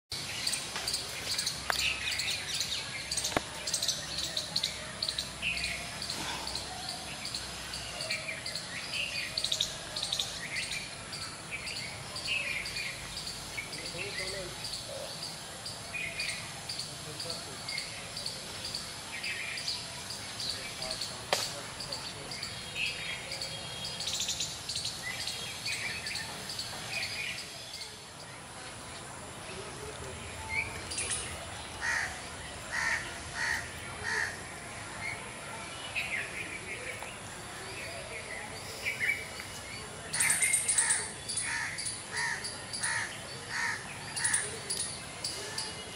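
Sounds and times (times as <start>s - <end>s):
outdoor background noise: 0.1s - 45.9s
small birds chirping: 0.1s - 45.9s.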